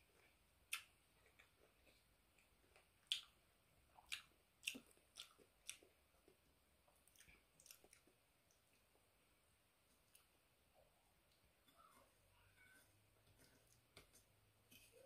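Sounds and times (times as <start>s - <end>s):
wet chewing clicks and smacks: 0.7s - 6.4s, 7.0s - 8.8s.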